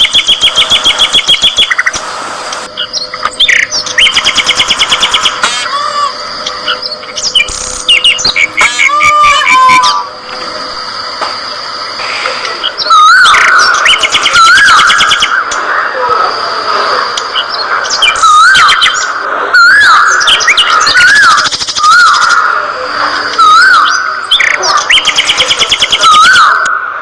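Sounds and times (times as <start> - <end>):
budgerigars chirping and warbling: 2.8 - 5.4, 6.6 - 9.7, 12.6 - 15.4, 17.3 - 22.5, 23.4 - 26.5.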